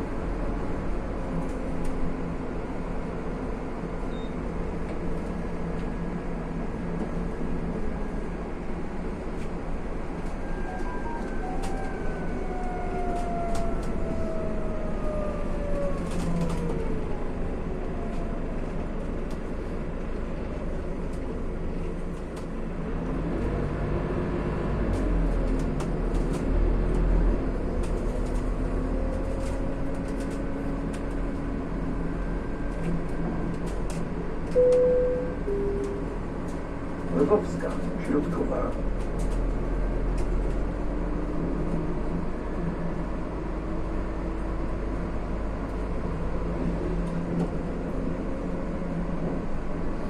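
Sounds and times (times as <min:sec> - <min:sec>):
bus body rattles and clicks: 0:00.0 - 0:50.0
bus diesel engine whine: 0:00.0 - 0:50.0.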